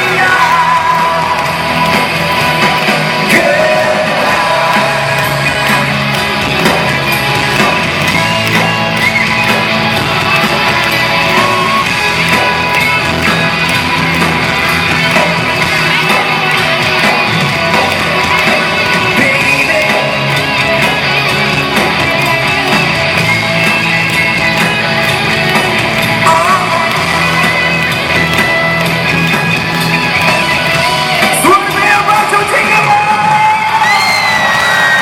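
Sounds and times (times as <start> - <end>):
man singing: 0.0 - 1.8, 3.2 - 5.9, 18.7 - 20.5, 26.2 - 27.4
live rock band playing: 0.0 - 35.0.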